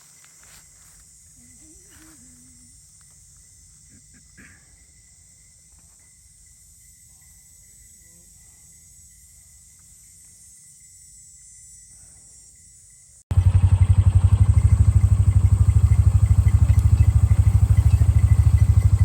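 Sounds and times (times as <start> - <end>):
insects chirring: 0.0 - 19.0
soft ticks: 16.7 - 16.9.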